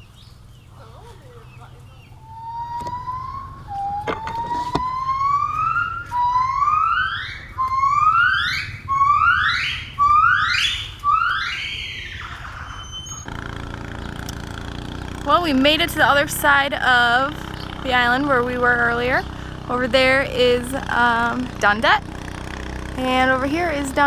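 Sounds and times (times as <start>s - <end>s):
monkey whooping calls: 10.0s - 13.2s.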